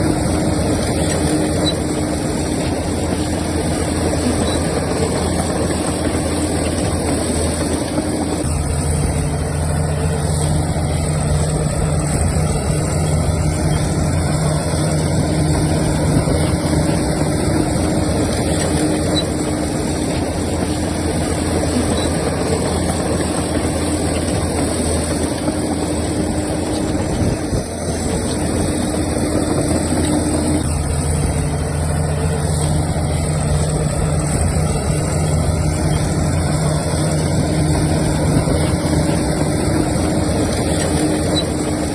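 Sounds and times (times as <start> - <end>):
diesel earthmoving machinery running: 0.0 - 41.9.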